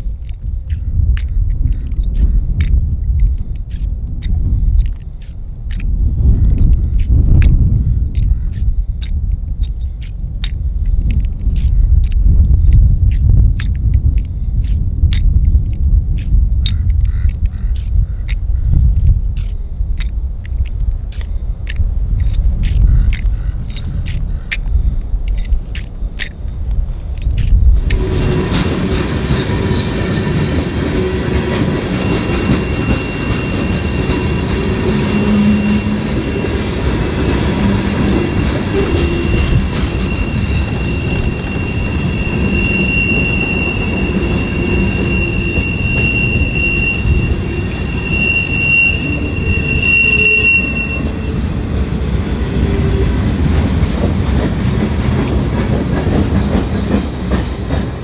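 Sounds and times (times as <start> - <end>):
train wheels rumbling on rails: 0.0 - 58.0
high wheel squeal: 25.3 - 53.4.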